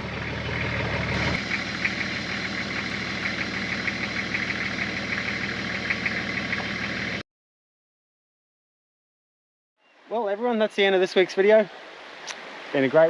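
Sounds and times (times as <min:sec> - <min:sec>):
diesel engine idling with knocking: 0:00.0 - 0:07.2
fast regular ticking: 0:01.2 - 0:06.7.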